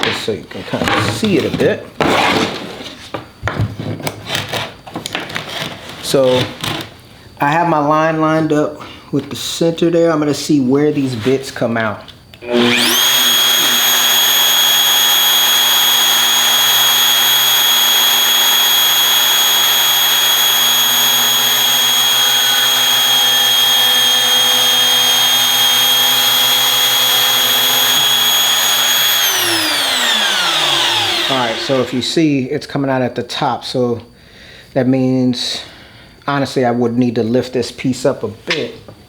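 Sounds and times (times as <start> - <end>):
power tool drilling plywood: 12.4 - 32.2.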